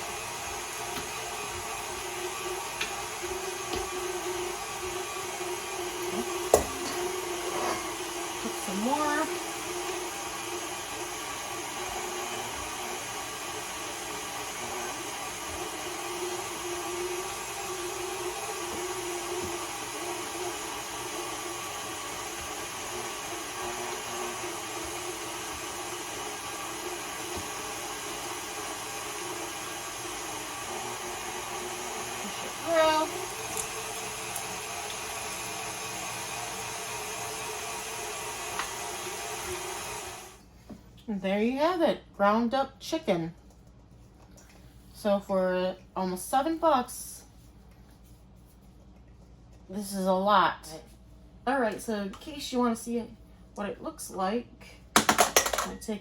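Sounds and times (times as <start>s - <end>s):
stand mixer motor grinding meat: 0.0s - 40.4s.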